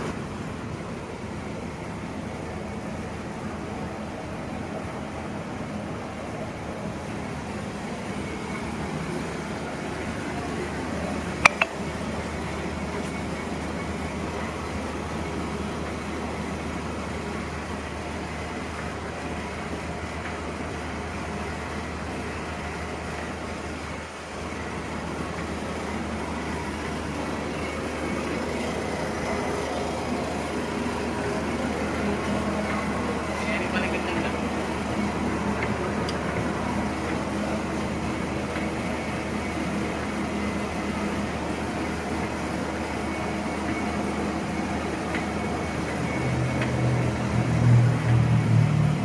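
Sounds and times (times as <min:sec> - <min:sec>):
boring machine humming: 0:00.0 - 0:49.0
sharp clicks: 0:11.4 - 0:11.8.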